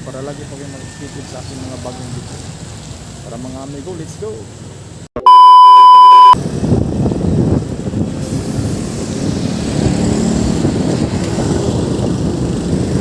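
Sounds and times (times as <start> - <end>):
loud steady beep tone: 5.2 - 6.4
wind buffeting microphone: 6.4 - 13.0.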